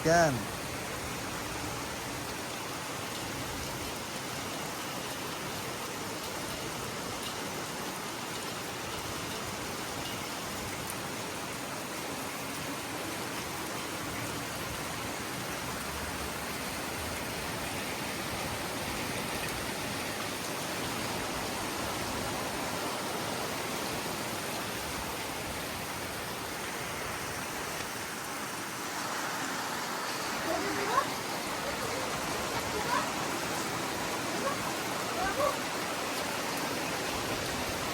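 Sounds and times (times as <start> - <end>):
heavy rain falling: 0.0 - 37.9
water running: 28.7 - 37.9.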